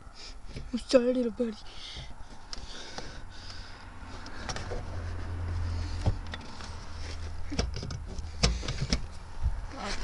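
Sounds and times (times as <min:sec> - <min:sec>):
car hood clicks and knock: 0:07.5 - 0:09.1.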